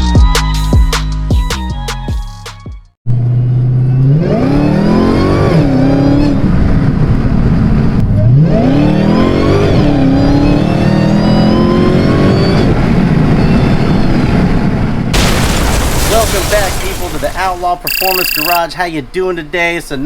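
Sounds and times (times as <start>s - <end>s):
car engine accelerating hard: 3.1s - 13.3s.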